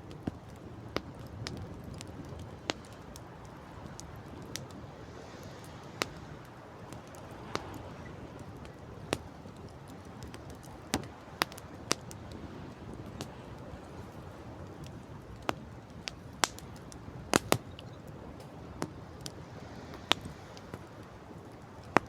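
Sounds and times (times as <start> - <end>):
campfire crackling and popping: 0.0 - 22.0
sea: 0.0 - 22.0
wind: 0.0 - 22.0.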